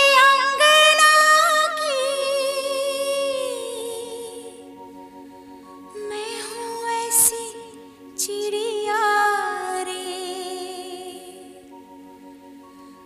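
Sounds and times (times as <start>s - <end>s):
high voice singing: 0.0s - 4.7s.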